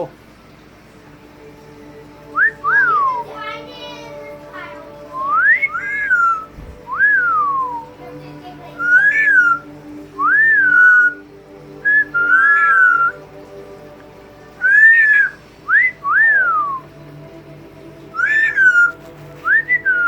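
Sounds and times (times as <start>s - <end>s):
parrot whistling: 2.3s - 3.4s, 5.1s - 7.9s, 8.7s - 13.3s, 14.6s - 17.0s, 18.0s - 20.0s.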